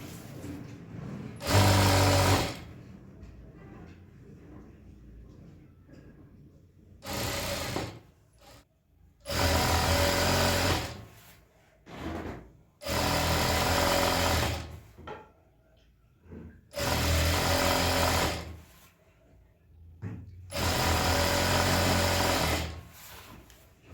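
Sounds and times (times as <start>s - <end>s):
sewing machine stitching: 0.0s - 2.8s, 7.0s - 8.6s, 9.2s - 11.2s, 12.1s - 14.9s, 16.7s - 18.7s, 20.5s - 23.2s.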